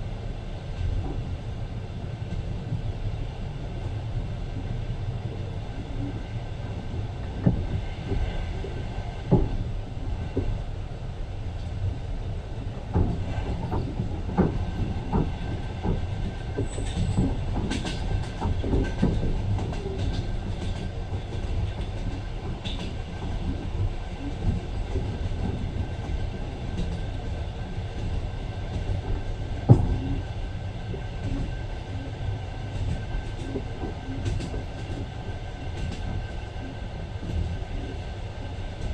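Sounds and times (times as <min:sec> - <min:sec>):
train rumble inside carriage: 0:00.0 - 0:38.9
wheels clacking over rail joints: 0:12.9 - 0:27.4.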